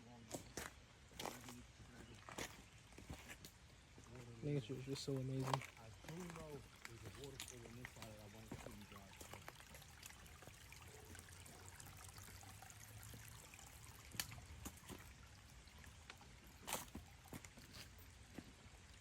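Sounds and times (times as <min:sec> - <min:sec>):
running water: 0:00.4 - 0:19.0.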